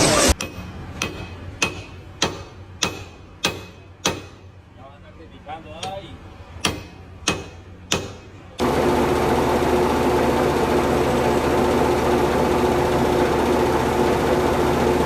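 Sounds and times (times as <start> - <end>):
loud mechanical running noise: 0.0 - 4.7, 5.8 - 15.0
sharp knocks: 6.6 - 8.3.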